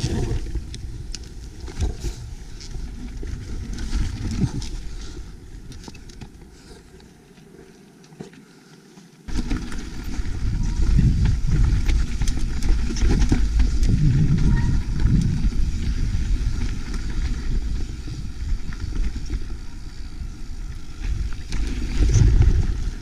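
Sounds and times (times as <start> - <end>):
wind rumble on microphone: 0.0 - 6.3, 9.3 - 23.0
bike tyres clattering over rock: 9.3 - 23.0.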